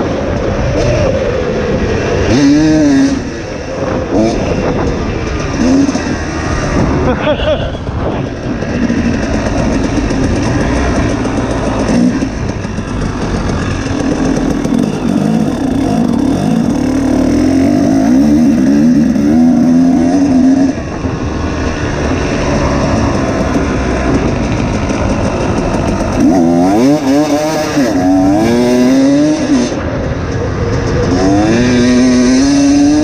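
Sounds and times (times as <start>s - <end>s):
two-stroke dirt bike engine: 0.0s - 33.0s.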